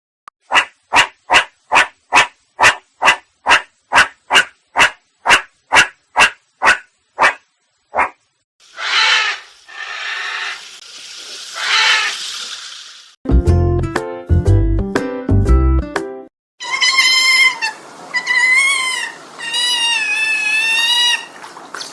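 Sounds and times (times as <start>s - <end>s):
animal calling: 0.5s - 10.6s, 16.6s - 21.4s.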